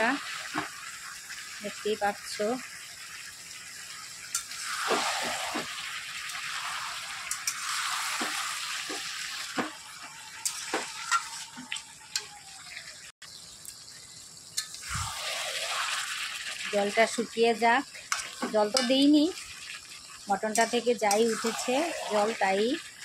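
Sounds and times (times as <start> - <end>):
meat sizzling in a pan: 0.0 - 23.0
metal spatula scraping a pan: 6.4 - 12.3, 18.0 - 19.5, 20.4 - 22.7.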